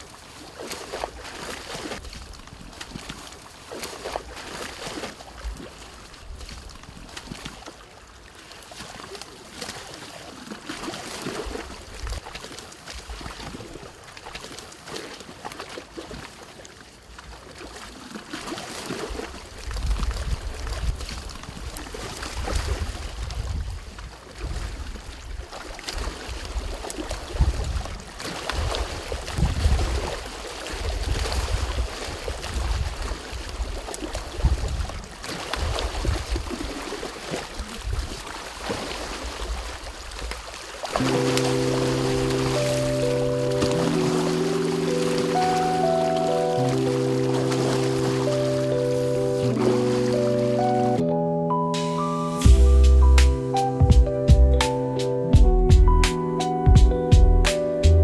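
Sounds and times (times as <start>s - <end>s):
water splashing: 24.3s - 51.1s
low rumble: 52.4s - 54.6s.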